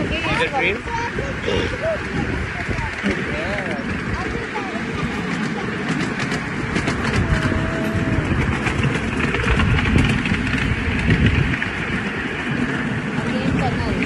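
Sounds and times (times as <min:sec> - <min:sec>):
miniature train rumbling on track: 0:00.0 - 0:14.0
light track clicks: 0:02.0 - 0:14.0.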